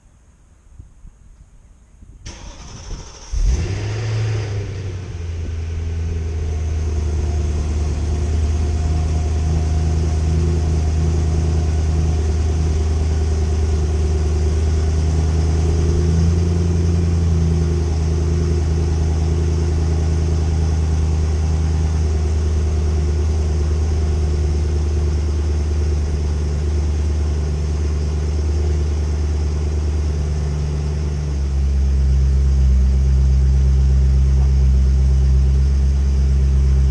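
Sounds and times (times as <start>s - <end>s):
car engine cold start idling: 2.2s - 20.3s.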